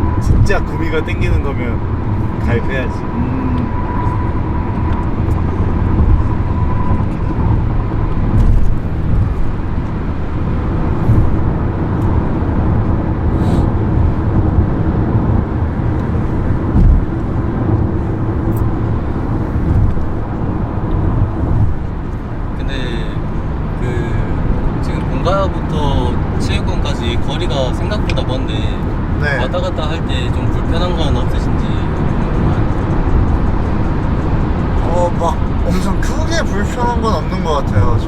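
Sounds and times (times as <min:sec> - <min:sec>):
car cabin road and engine rumble: 0:00.0 - 0:38.0.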